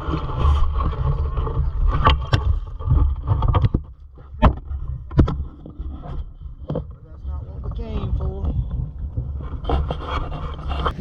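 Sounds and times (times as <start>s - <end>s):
sharp knocks: 2.0s - 5.4s.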